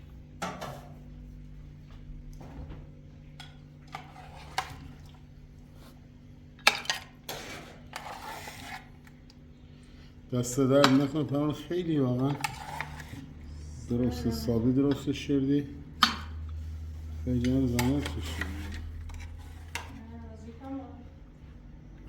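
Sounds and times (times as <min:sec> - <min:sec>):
dishes and utensils clattering: 0:06.6 - 0:08.5.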